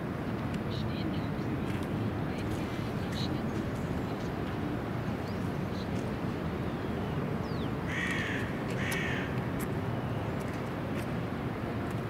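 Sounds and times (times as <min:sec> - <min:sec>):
bird harsh crow-like calls: 0:07.9 - 0:09.4.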